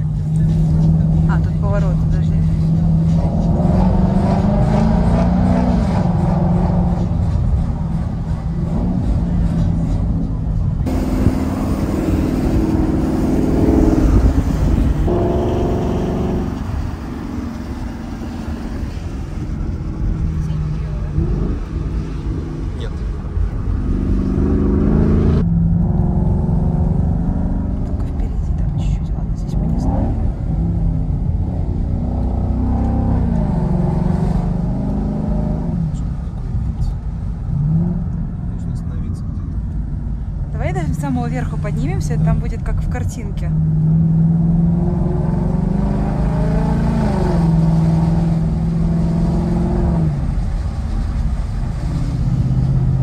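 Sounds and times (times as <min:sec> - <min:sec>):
car engine under throttle: 0:00.0 - 0:53.0
road rumble: 0:00.0 - 0:53.0
wind noise: 0:02.5 - 0:38.4
car engine revving from inside cabin: 0:10.8 - 0:16.7, 0:29.5 - 0:36.0, 0:43.6 - 0:50.4.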